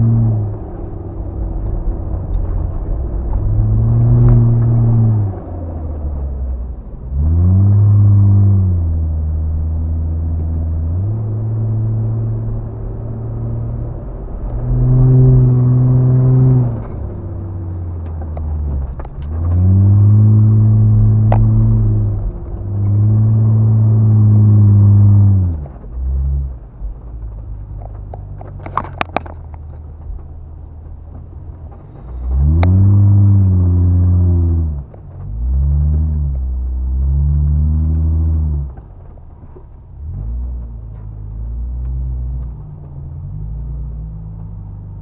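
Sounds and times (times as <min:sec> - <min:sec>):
truck engine revving: 0:00.0 - 0:45.0.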